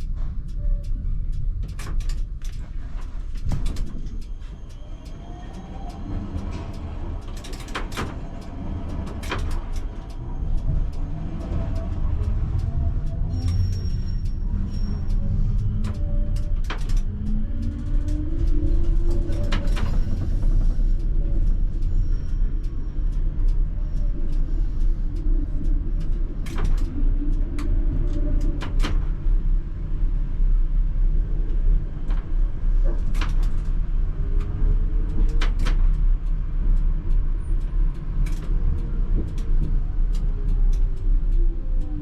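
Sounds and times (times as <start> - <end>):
tram wheels rumbling on rails: 0.0 - 42.0
track clicks and knocks: 1.3 - 29.2, 31.3 - 42.0
tram motor whine: 3.2 - 32.9.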